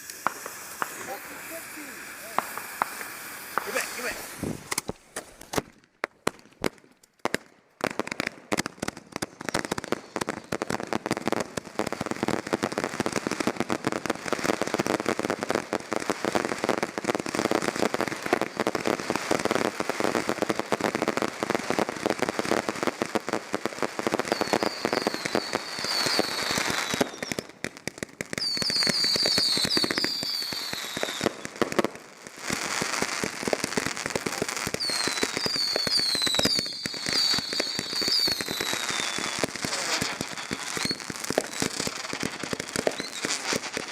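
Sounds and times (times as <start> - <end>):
fireworks popping and banging: 0.0 - 43.9
whistling fireworks: 0.0 - 43.9.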